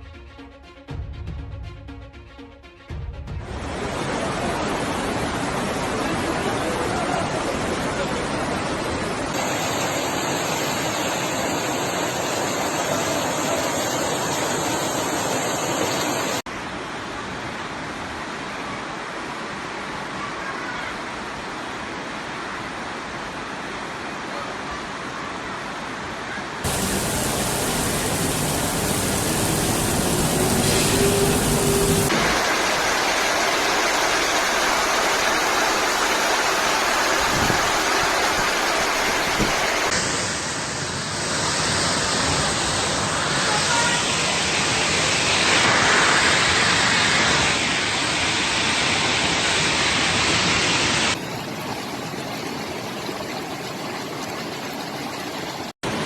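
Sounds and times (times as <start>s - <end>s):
heavy rain pouring: 3.4s - 16.4s, 26.6s - 40.3s
floodwater rushing: 3.4s - 20.2s, 26.6s - 56.0s.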